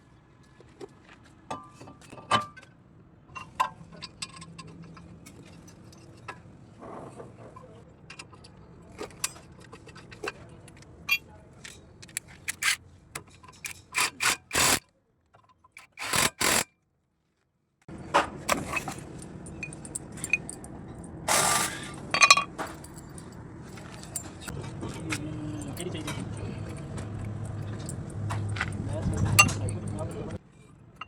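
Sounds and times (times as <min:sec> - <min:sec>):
metal tools clinking and tapping: 0:03.3 - 0:06.5, 0:07.5 - 0:14.8, 0:18.5 - 0:21.1, 0:22.2 - 0:30.3
loud scraping rasps: 0:12.5 - 0:12.8, 0:13.6 - 0:14.8, 0:15.8 - 0:16.7, 0:21.3 - 0:22.0.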